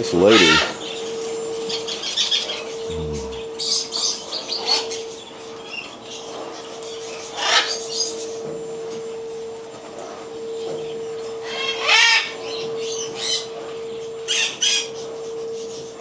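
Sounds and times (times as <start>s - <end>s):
pet birds chirping and squawking: 0.0s - 2.6s.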